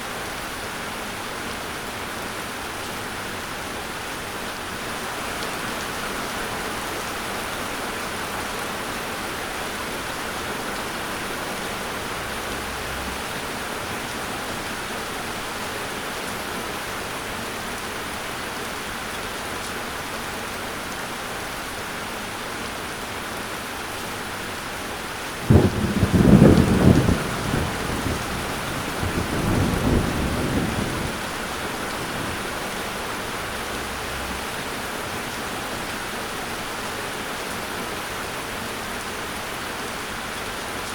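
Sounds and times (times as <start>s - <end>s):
heavy rain: 0.0s - 40.9s
thunder rumbling: 25.4s - 32.7s.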